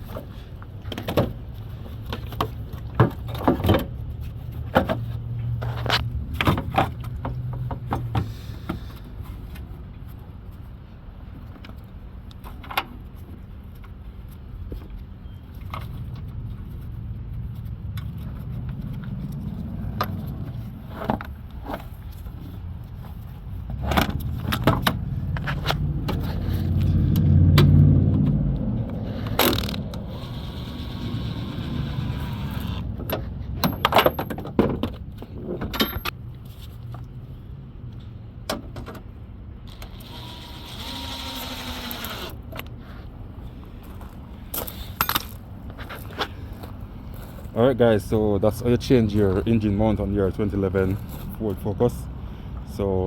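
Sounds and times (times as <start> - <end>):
car engine running: 23.7 - 34.2.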